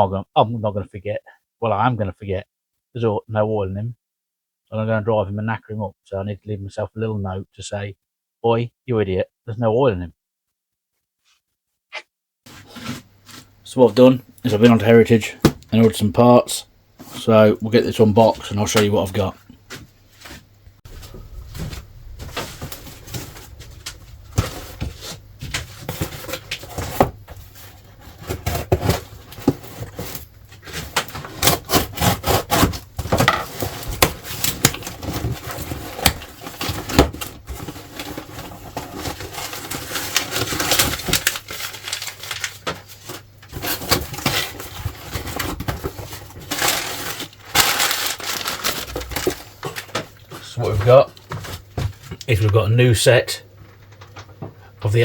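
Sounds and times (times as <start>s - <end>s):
cardboard and packaging rustling: 12.5s - 13.6s, 17.0s - 52.5s.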